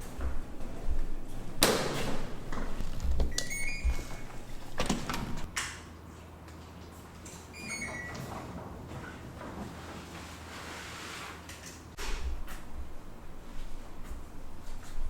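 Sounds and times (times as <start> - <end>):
knocks and scrapes of handling: 1.9 - 5.5.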